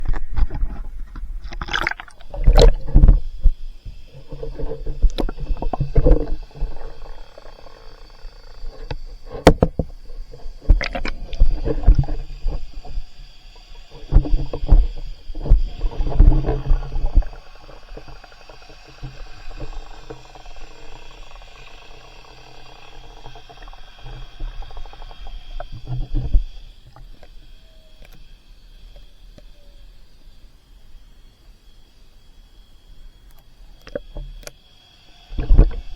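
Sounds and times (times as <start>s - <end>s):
kayak paddle splashing water: 1.4s - 3.0s.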